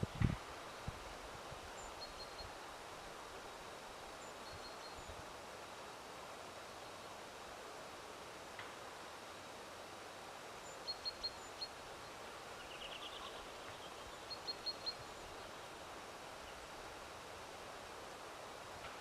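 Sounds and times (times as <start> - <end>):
steady outdoor hiss: 0.0 - 19.0
songbird chirping: 10.6 - 16.7.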